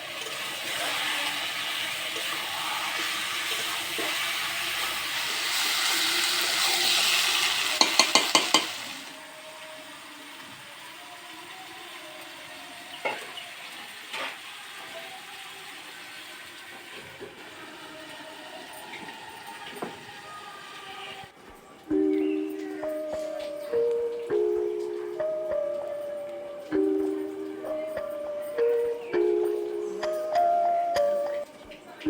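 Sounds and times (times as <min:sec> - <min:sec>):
food sizzling in a pan: 0:00.0 - 0:32.0.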